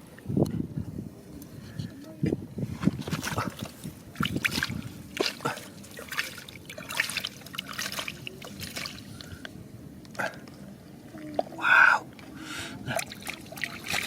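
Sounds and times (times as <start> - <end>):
water splashing in a stream: 2.8 - 9.4, 12.8 - 14.0.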